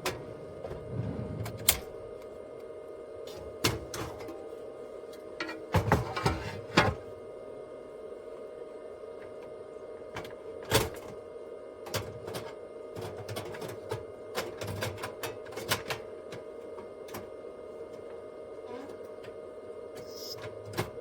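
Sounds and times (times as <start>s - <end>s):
steady hum: 0.0s - 5.8s, 17.4s - 21.0s.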